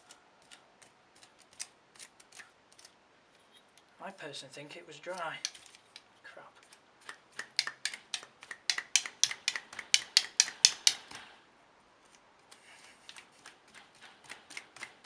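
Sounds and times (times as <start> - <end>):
rapid sharp clicks: 6.6 - 11.4, 13.1 - 15.0.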